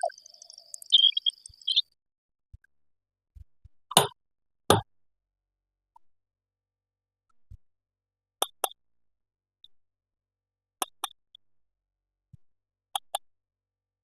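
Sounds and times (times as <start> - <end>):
faint ticks: 0.0 - 1.8.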